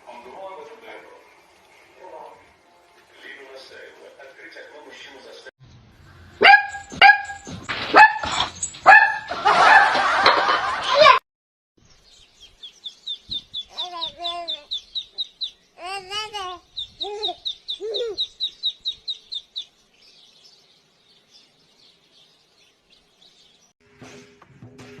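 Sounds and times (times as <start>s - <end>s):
bird chirping fast: 11.8s - 23.7s
lower bird calls: 11.8s - 23.7s.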